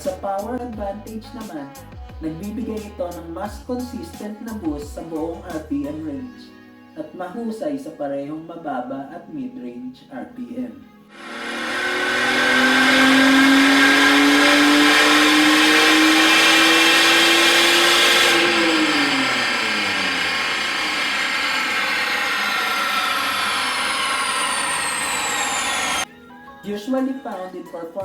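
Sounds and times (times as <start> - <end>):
car engine accelerating: 11.1 - 26.1
supercharger whine: 11.1 - 26.1.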